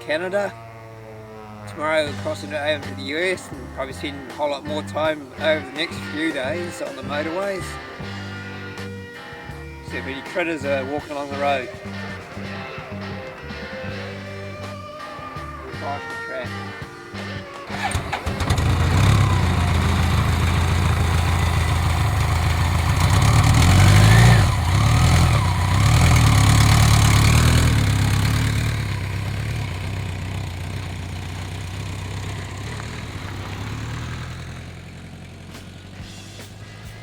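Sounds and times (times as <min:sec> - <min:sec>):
motorcycle engine running: 0:17.7 - 0:37.0.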